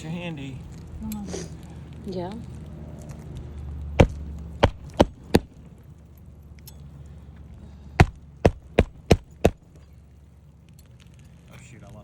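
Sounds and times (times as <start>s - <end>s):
hammer driving nails into shingle: 4.0s - 5.6s, 8.0s - 9.7s.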